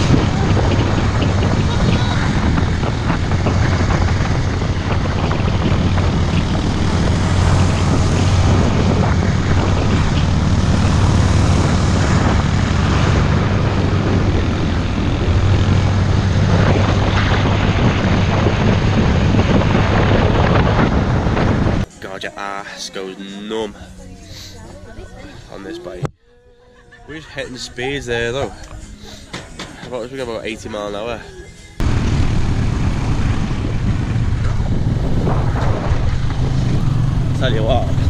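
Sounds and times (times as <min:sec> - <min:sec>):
wind on microphone: 0:00.0 - 0:21.9, 0:31.8 - 0:38.0
engine running steadily: 0:00.0 - 0:22.0, 0:27.0 - 0:38.0.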